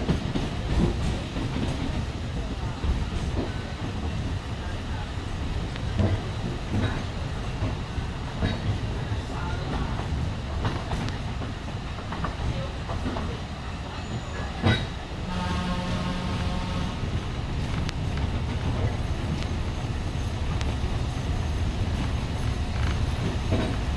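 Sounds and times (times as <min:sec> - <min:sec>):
train wheels clacking on rails: 0:00.0 - 0:23.9
train horn: 0:15.2 - 0:17.2.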